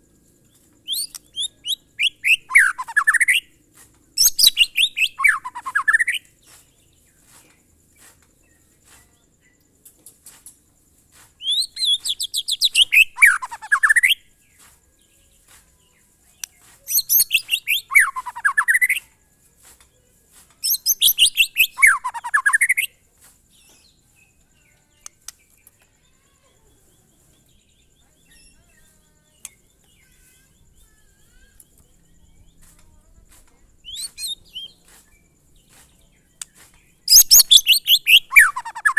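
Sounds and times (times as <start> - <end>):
bird singing descending phrases: 0.9 - 3.5, 4.2 - 6.2, 11.4 - 14.2, 16.9 - 19.0, 20.7 - 22.9, 37.1 - 38.9.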